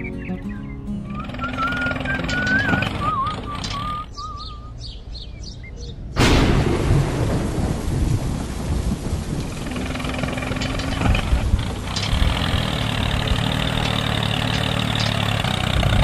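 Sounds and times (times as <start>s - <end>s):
wavering high tune: 0.0s - 4.8s
low rumbling thunder: 6.2s - 13.3s
thunderclap: 6.2s - 13.4s
heavy rain: 6.2s - 16.0s.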